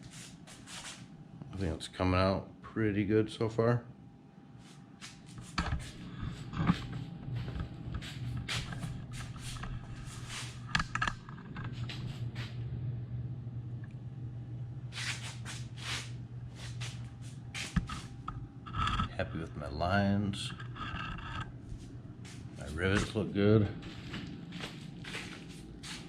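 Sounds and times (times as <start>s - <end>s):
rustling and shuffling: 0.0s - 1.1s, 4.6s - 12.6s, 14.9s - 26.0s
steady low hum: 0.0s - 26.0s.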